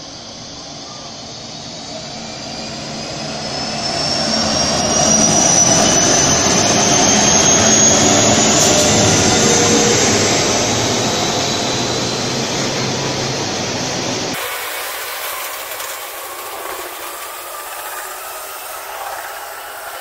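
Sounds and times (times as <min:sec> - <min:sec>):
diesel locomotive engines: 0:00.0 - 0:20.0
high whine rising in pitch: 0:01.4 - 0:20.0
train wheel noise: 0:12.3 - 0:20.0.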